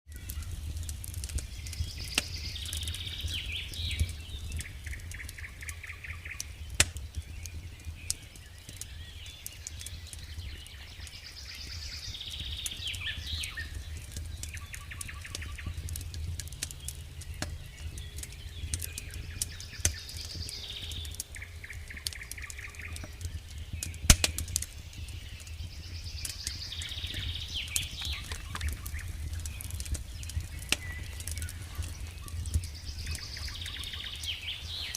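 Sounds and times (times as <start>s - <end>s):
campfire crackling and popping: 0.1s - 34.9s
steady low rumble: 10.8s - 34.9s
songbird trilling: 30.6s - 34.9s.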